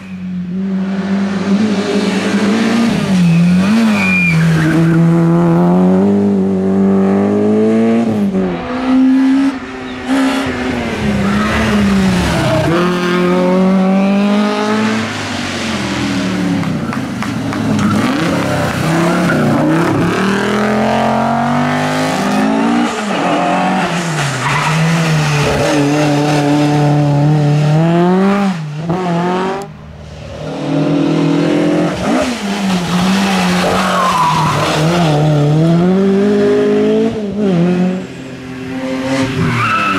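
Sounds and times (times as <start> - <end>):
rally car engines at full throttle: 0.0 - 39.9.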